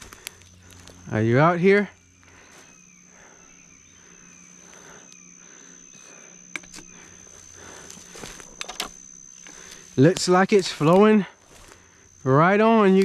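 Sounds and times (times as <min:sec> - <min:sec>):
footsteps rustling in brush: 0:00.0 - 0:02.9, 0:07.0 - 0:13.0
high-pitched insect drone: 0:00.0 - 0:13.0.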